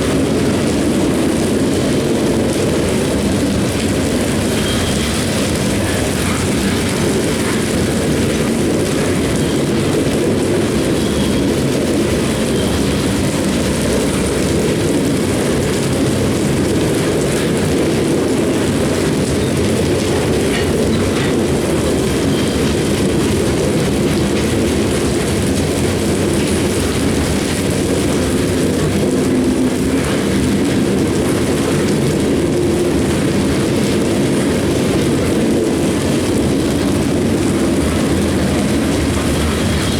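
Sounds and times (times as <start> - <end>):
train wheels rumbling and rattling: 0.0 - 39.9
faint high wheel squeals: 4.4 - 6.6, 20.6 - 23.1.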